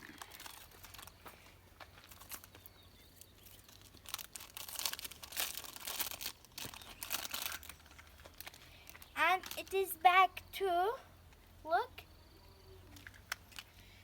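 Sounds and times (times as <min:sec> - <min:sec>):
packaging crinkling and rustling: 0:00.0 - 0:01.2, 0:02.0 - 0:02.6, 0:03.2 - 0:09.8.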